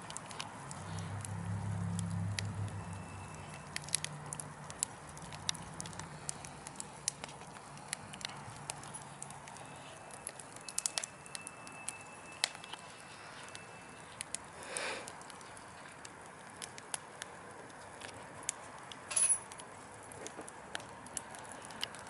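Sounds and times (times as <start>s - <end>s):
low fire hiss: 0.0s - 22.0s
wood fire crackling and popping: 0.0s - 22.0s
faint thin whistle: 9.6s - 14.0s.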